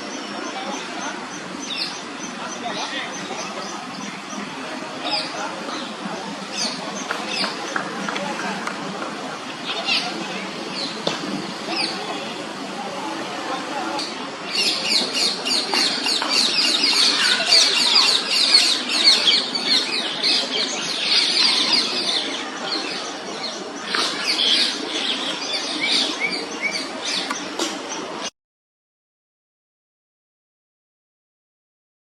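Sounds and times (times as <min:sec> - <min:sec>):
fledglings begging calls: 0:00.1 - 0:08.1, 0:14.5 - 0:27.6.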